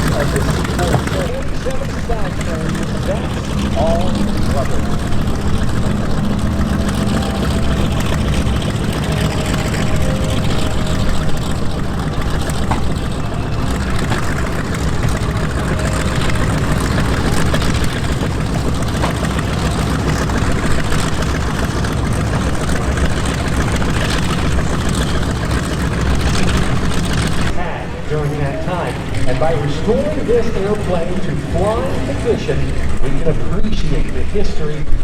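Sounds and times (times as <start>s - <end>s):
aircraft propeller engines running: 0.0s - 35.0s.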